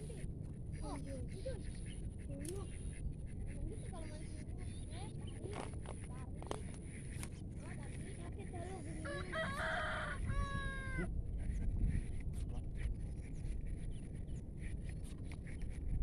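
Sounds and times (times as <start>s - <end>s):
rooster crowing: 9.0s - 11.1s.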